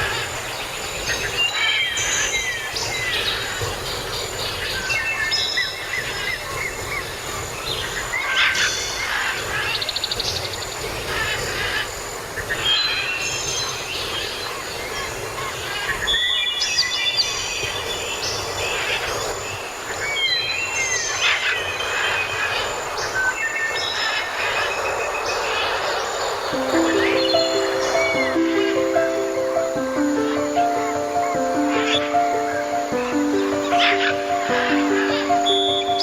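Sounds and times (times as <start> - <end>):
hiss of rain: 26.1 - 36.0
bird trill: 26.6 - 36.0.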